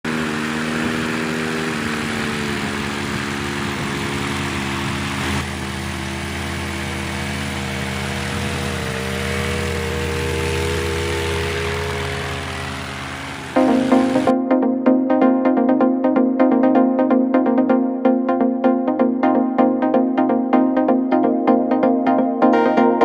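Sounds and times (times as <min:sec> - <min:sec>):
small engine running: 0:00.0 - 0:14.4.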